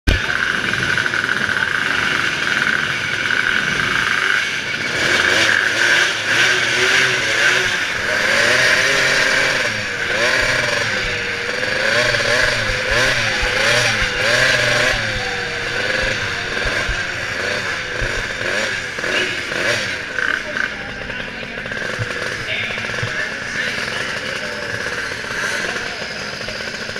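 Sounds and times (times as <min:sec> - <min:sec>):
engine revving: 0:00.1 - 0:26.9
steady din: 0:06.3 - 0:26.8.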